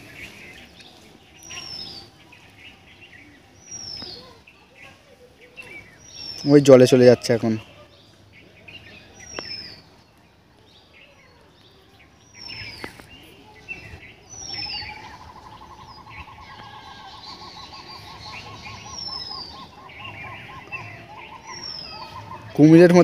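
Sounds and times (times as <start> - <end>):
bird chirps: 0.0 - 23.0
rapid bird trill: 13.7 - 23.0.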